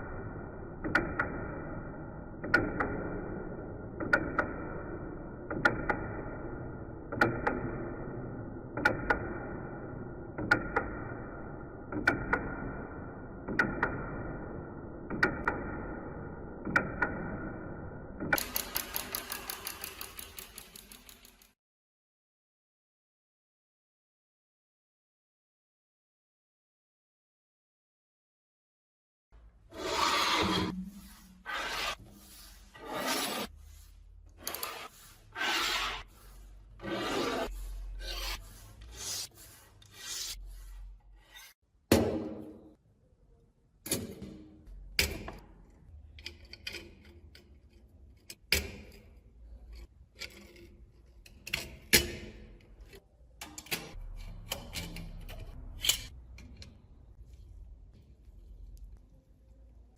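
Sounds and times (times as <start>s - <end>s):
small clicks and knocks: 18.3s - 21.6s
abrasive scraping on metal lamp: 29.8s - 41.6s.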